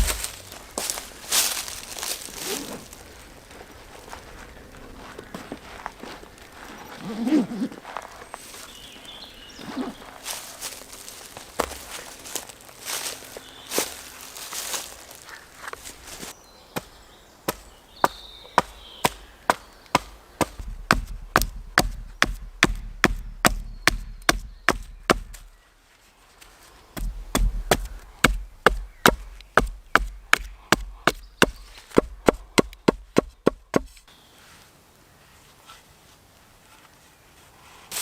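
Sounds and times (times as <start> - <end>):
wood chopping knocks: 0.0 - 0.4, 17.5 - 25.5, 27.0 - 33.9.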